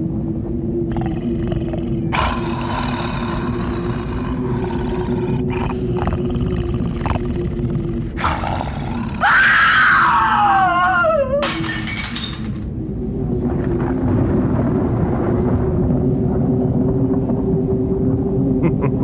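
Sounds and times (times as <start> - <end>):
low drone: 0.0 - 19.0
wailing cry: 9.2 - 11.4
glass shattering: 11.4 - 12.7.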